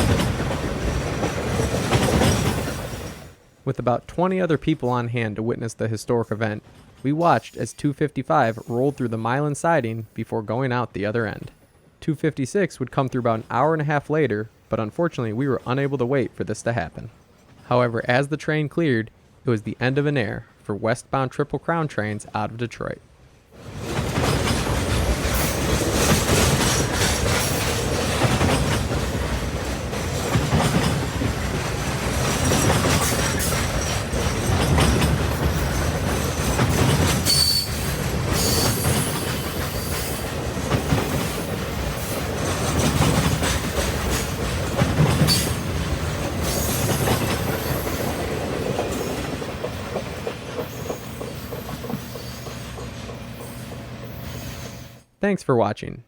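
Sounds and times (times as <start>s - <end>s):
train wheels clacking over rail joints: 0.0s - 3.4s, 23.6s - 53.9s
high wheel squeals: 37.1s - 40.3s, 50.6s - 54.8s.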